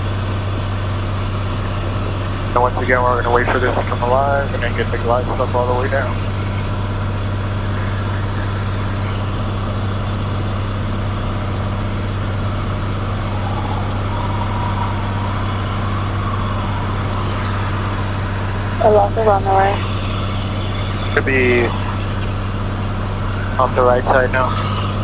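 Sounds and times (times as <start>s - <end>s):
propeller plane engine droning: 0.0s - 25.0s.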